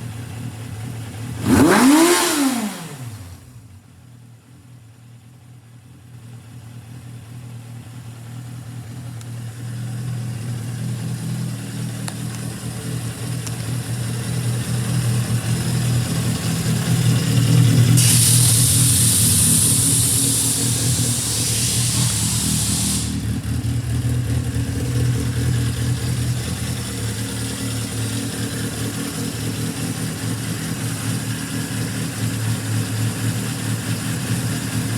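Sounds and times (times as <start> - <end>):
motorcycle engine running: 0.0 - 34.9
loud hiss: 17.7 - 23.8.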